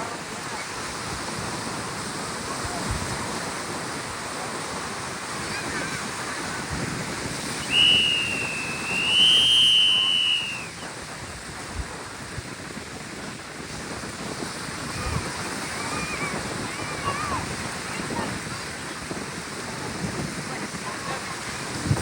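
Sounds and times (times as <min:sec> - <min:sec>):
surf: 0:00.0 - 0:22.0
wind: 0:00.0 - 0:22.0
long high whistle: 0:07.6 - 0:11.0.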